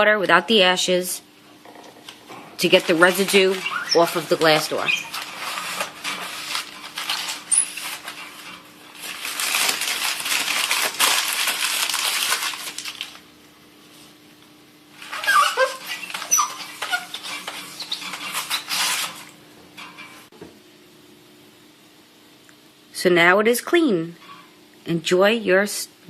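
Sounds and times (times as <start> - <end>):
paper squeaking on glass: 2.6 - 12.8, 15.0 - 20.3
wet paper scrubbing glass: 2.6 - 13.2, 15.0 - 19.3.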